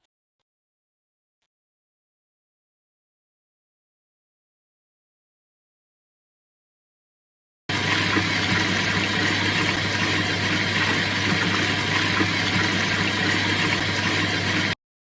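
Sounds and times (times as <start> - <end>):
washing machine humming: 7.7 - 14.8
washing machine whooshing: 7.7 - 14.8.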